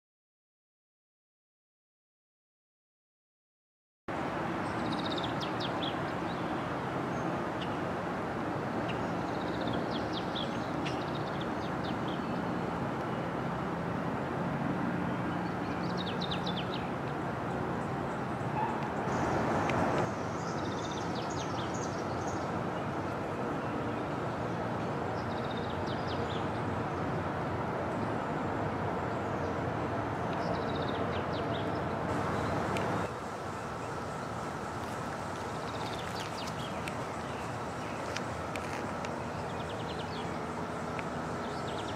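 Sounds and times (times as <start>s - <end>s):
steady rushing background noise: 4.1s - 41.9s
songbird singing: 4.6s - 7.8s, 8.7s - 13.3s, 15.1s - 27.0s, 30.2s - 41.9s.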